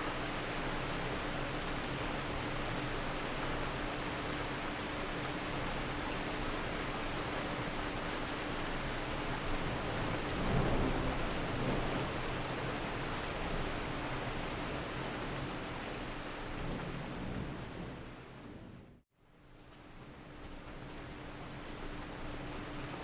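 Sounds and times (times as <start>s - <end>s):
steady rain: 0.0s - 23.0s
low rumble of thunder: 9.5s - 19.0s.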